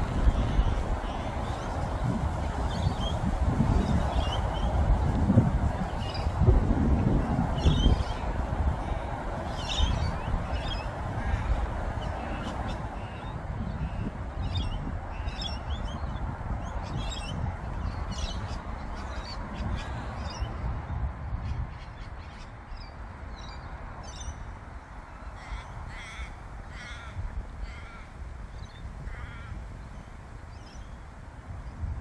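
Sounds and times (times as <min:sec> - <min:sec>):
steady low rumble: 0:00.0 - 0:15.1
birds chirping and calling: 0:07.6 - 0:20.6.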